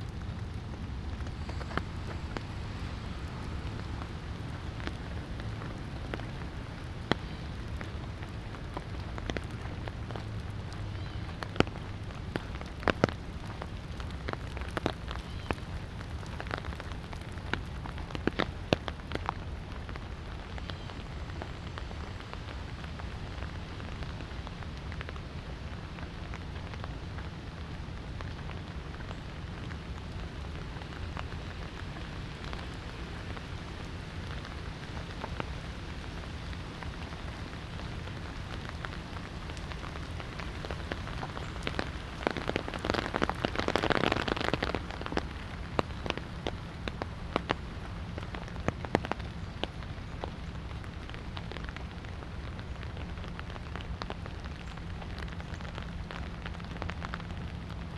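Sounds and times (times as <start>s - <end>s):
light rain falling: 0.0s - 57.9s
raindrops ticking close by: 0.0s - 57.9s.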